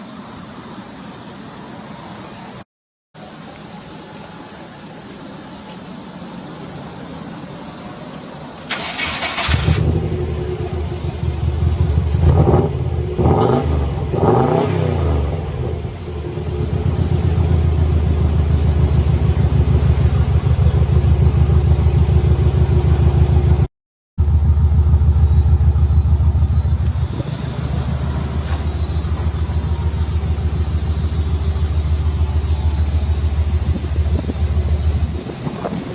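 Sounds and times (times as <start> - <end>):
starter motor cranking: 8.7 - 10.0
car engine revving: 8.7 - 23.7, 24.3 - 35.9
car engine idling: 8.7 - 35.9.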